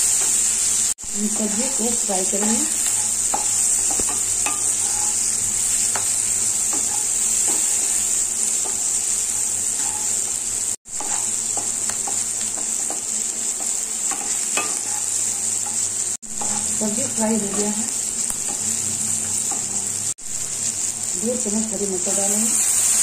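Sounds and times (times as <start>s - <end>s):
vegetables sizzling in a pan: 0.0s - 23.0s
spatula stirring and scraping: 1.3s - 16.8s.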